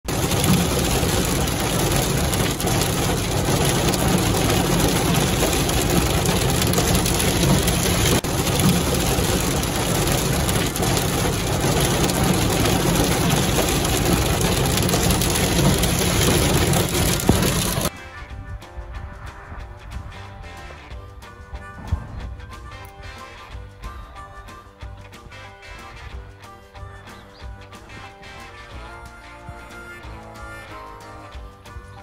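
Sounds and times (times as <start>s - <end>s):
heavy rain drumming on vehicle roof: 0.0s - 17.9s.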